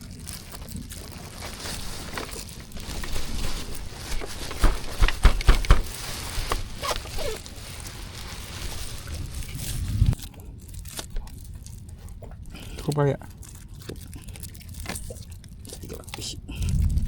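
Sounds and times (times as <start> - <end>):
reeds rustling underfoot: 0.0 - 11.7
heavy thumps: 2.8 - 8.1.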